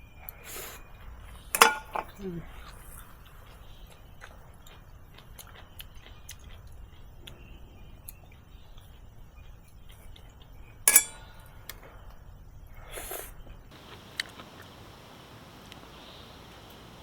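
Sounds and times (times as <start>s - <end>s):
utensils and tableware clinking: 1.5s - 2.3s, 10.9s - 11.7s.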